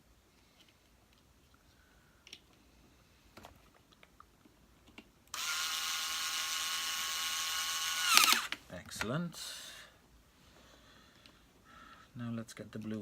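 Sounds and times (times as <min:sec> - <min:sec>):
power tool motor whining: 0:05.3 - 0:08.6.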